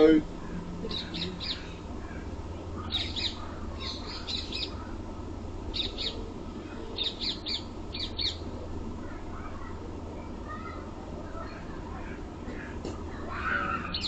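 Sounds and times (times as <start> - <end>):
steady low hum: 0.0 - 14.0
bird chirping: 0.9 - 1.8, 2.8 - 4.9, 5.7 - 6.3, 7.0 - 8.4.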